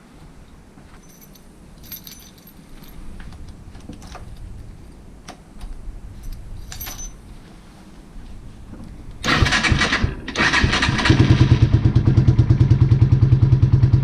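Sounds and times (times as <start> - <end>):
low handling rumble: 0.6 - 9.3
keys jangling: 1.0 - 3.2, 3.8 - 4.5, 6.1 - 7.3.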